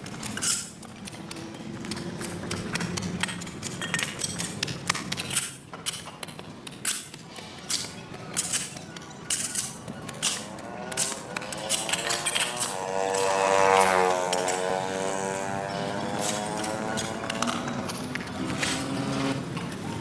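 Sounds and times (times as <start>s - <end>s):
sharp knocks and scrapes: 0.0s - 20.0s
engine passing close by: 10.1s - 20.0s.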